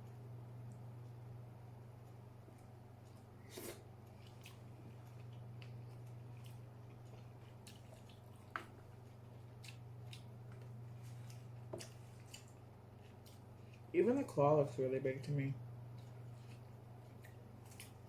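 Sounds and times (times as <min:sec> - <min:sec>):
low electrical hum: 0:00.0 - 0:18.0
crab legs picked apart and chewed: 0:02.4 - 0:14.3, 0:15.9 - 0:18.0.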